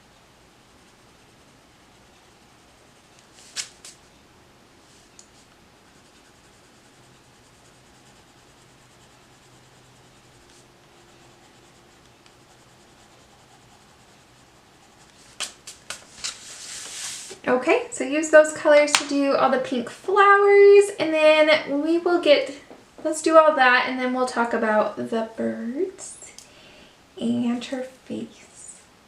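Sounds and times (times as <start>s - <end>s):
pencil scratching on paper: 5.8s - 15.4s.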